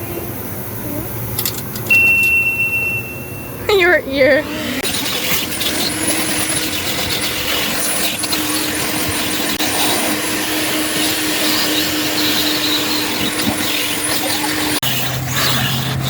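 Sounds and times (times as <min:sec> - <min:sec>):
vacuum cleaner running: 0:04.1 - 0:14.8.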